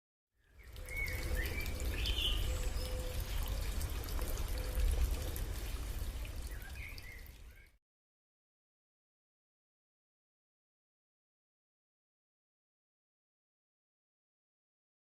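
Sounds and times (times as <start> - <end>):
stream water flowing: 0.6 - 7.8.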